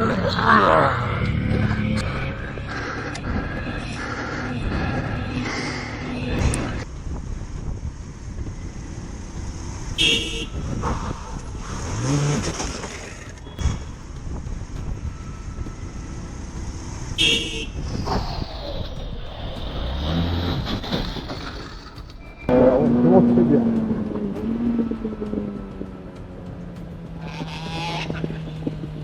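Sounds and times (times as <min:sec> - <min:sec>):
traffic and road noise: 0:00.0 - 0:29.0
vehicle horn toots: 0:10.0 - 0:10.8, 0:17.2 - 0:17.8.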